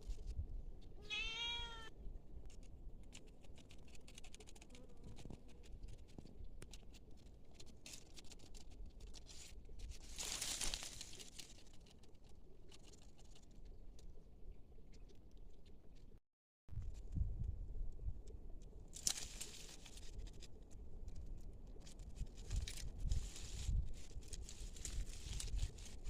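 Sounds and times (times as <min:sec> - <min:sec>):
rustling: 0:02.5 - 0:14.2, 0:18.9 - 0:26.0.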